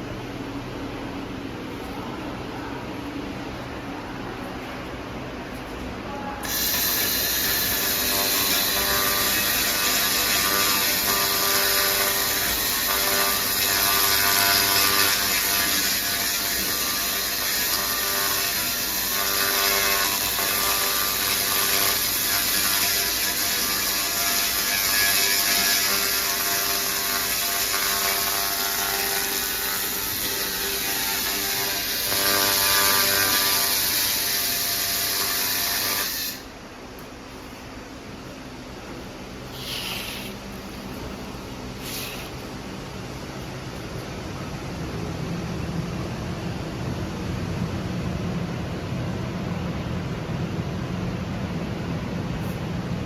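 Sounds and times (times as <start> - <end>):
machine hum: 0.0 - 53.0
laser crackling hiss on metal: 6.4 - 36.4.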